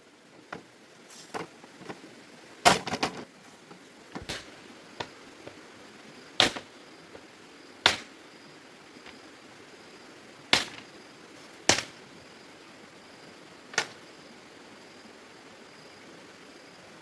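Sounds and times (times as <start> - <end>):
faint steady hiss: 0.0 - 17.0
sharp short knocks: 4.1 - 5.6, 6.4 - 6.7, 7.8 - 8.1, 10.6 - 10.9, 11.6 - 12.0, 13.8 - 14.0.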